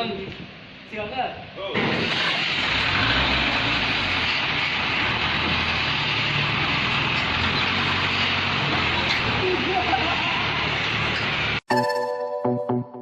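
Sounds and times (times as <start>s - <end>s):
road and wind noise: 0.0s - 11.6s
truck engine running: 1.8s - 11.6s.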